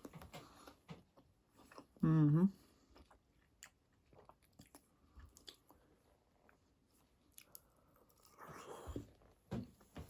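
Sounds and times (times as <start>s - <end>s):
quiet chewing: 0.0s - 9.4s.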